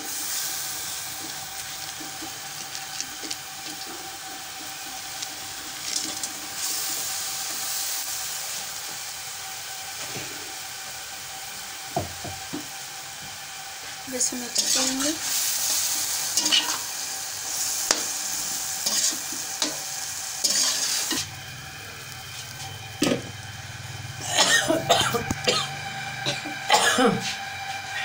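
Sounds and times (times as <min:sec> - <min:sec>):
oil sizzling: 0:00.0 - 0:28.0.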